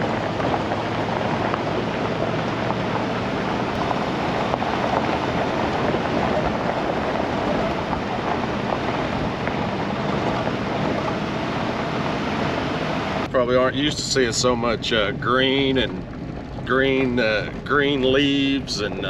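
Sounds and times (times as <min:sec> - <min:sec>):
road and tyre noise: 0:00.0 - 0:19.0
truck engine hum: 0:00.0 - 0:19.0.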